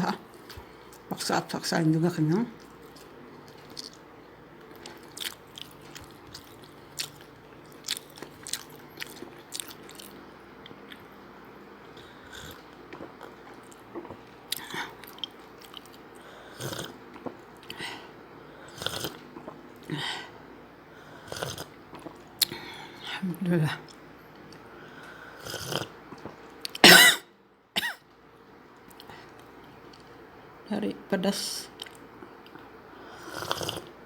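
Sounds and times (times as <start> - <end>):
person chewing and smacking: 2.6 - 11.1, 12.4 - 17.8, 21.4 - 22.6, 31.8 - 32.7.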